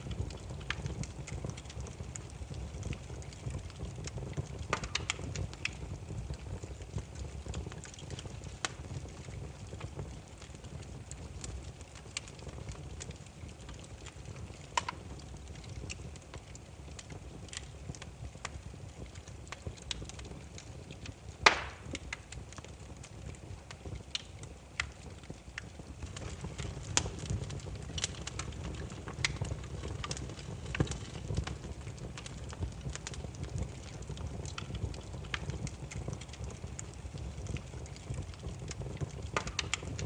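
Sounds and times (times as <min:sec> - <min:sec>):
firewood crackling and popping: 0:00.0 - 0:40.0
low rumble of flame: 0:00.0 - 0:40.0.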